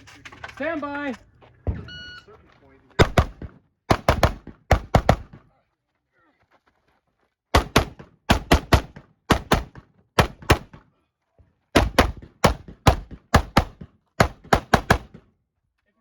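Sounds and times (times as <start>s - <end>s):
rifle shots: 3.0s - 5.4s, 7.6s - 10.8s, 11.8s - 15.2s.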